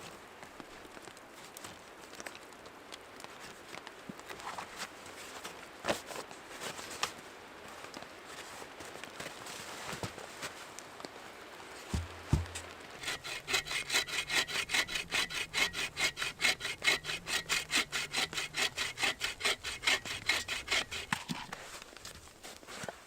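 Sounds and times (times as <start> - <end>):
hand saw cutting wood: 11.9 - 21.6.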